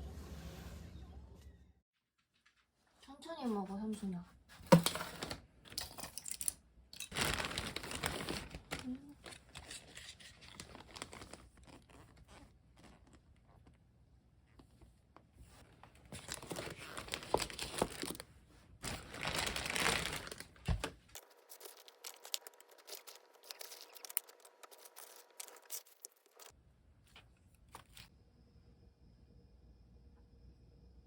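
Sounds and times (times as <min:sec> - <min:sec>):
crinkling and rustling: 0:03.9 - 0:28.1.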